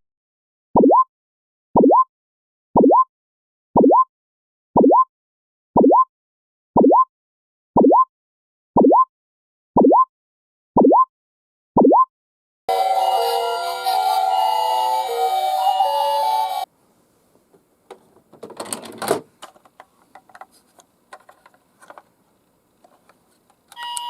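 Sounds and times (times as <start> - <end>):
electronic chirping beep: 0.8 - 1.1, 1.8 - 2.1, 3.8 - 4.1, 10.8 - 11.1, 11.8 - 12.1.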